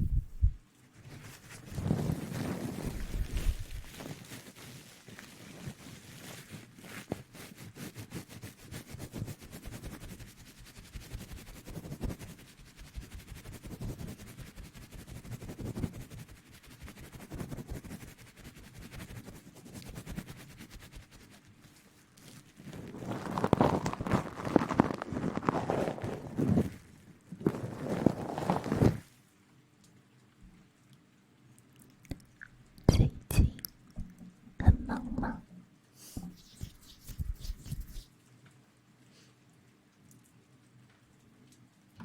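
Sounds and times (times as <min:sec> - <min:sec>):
crackly rustling: 0:00.0 - 0:30.4, 0:36.2 - 0:38.4.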